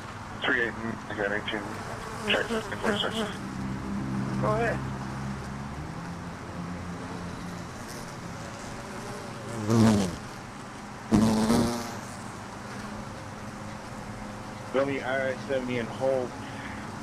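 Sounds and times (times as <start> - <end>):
honeybees buzzing: 0.6 - 17.0
bee flying past microphone: 7.0 - 10.4, 11.1 - 12.2.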